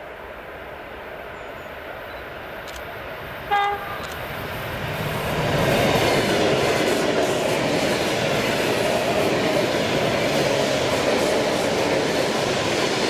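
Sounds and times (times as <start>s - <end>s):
train wheel and rail noise: 0.0s - 13.0s
short train horn blast: 3.5s - 4.0s.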